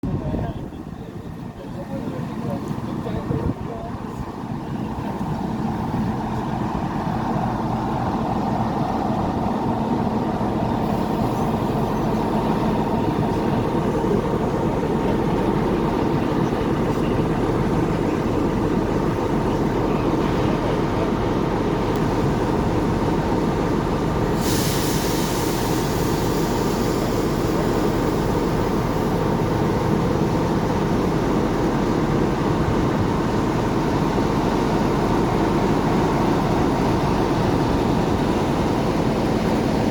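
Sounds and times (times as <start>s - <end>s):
diesel locomotive engine running: 0.0s - 39.9s
air hissing: 24.2s - 29.2s.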